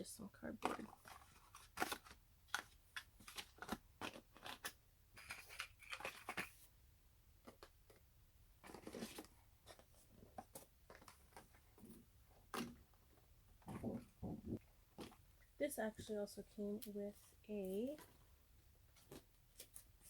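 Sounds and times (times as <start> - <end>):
paper crinkling: 0.6 - 6.6.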